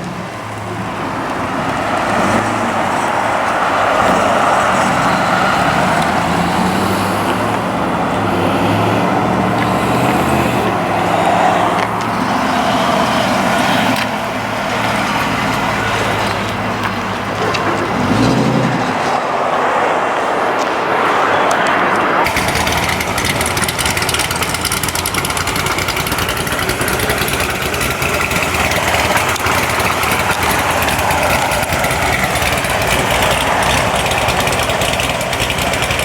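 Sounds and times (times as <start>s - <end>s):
vehicle engine running: 0.0s - 19.4s, 21.4s - 36.0s.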